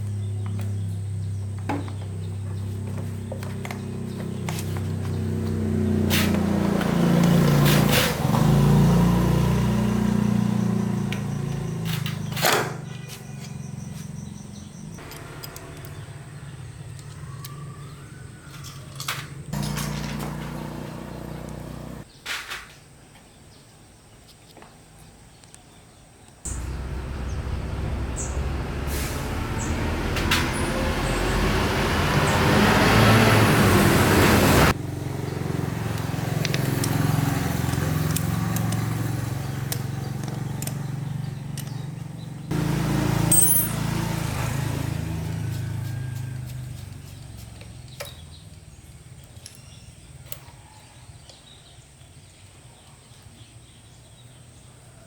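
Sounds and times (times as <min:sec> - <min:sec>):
motorbike engine running: 0:00.0 - 0:18.0, 0:19.5 - 0:22.1, 0:26.5 - 0:48.5.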